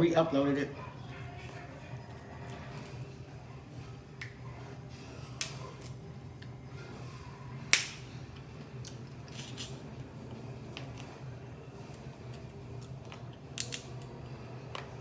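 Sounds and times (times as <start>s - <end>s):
eating cracks and clicks: 12.2s - 14.2s.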